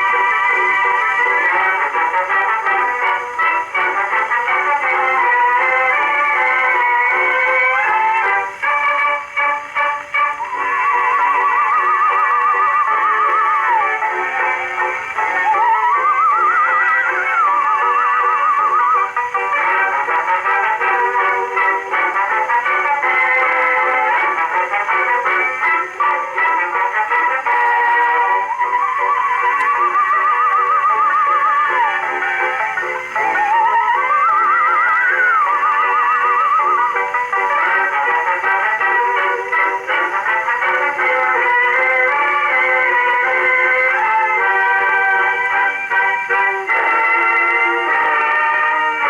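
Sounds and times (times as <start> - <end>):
gramophone playing record: 0.0 - 49.0.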